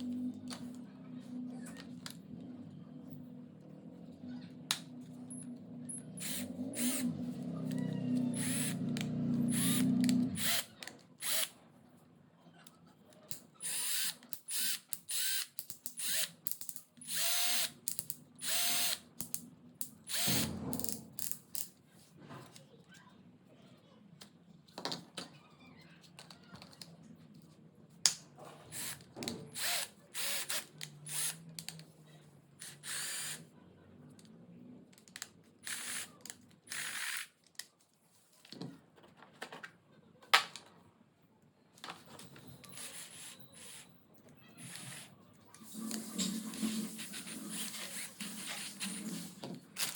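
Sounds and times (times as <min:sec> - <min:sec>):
cordless drill bursts: 0:06.2 - 0:07.1, 0:08.3 - 0:08.8, 0:09.5 - 0:11.5, 0:13.6 - 0:16.3, 0:17.0 - 0:17.8, 0:18.4 - 0:19.0, 0:20.1 - 0:20.5, 0:28.7 - 0:31.4, 0:32.6 - 0:33.4, 0:35.6 - 0:36.1, 0:36.7 - 0:37.3.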